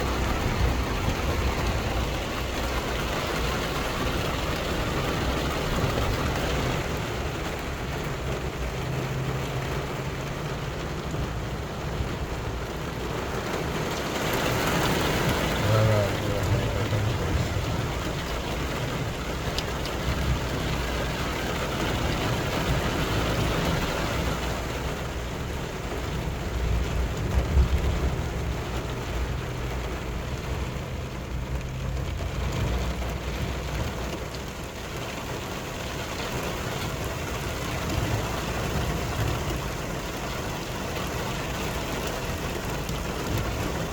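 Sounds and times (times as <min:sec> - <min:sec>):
heavy rain pouring: 0:00.0 - 0:43.9.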